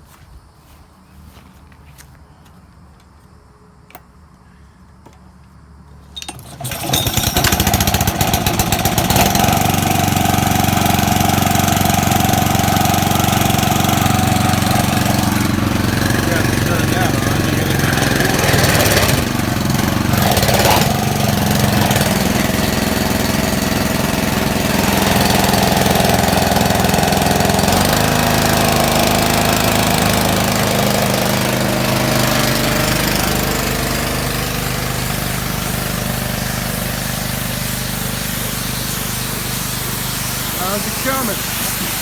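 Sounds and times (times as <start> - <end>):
pressure washer engine running: 6.2 - 42.0
water spray hissing: 7.6 - 29.9, 32.4 - 42.0.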